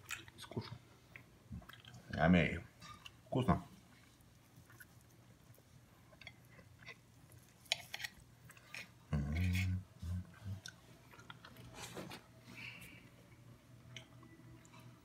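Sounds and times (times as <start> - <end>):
person chewing: 0.0 - 2.2, 4.0 - 11.9.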